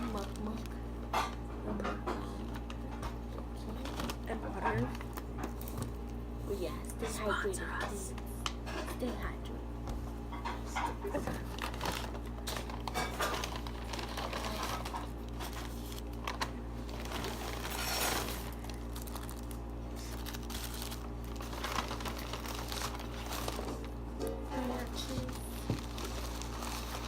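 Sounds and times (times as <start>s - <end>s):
food packaging crinkling: 0.0s - 1.4s, 2.4s - 6.4s, 11.1s - 27.0s
steady low hum: 0.0s - 27.0s.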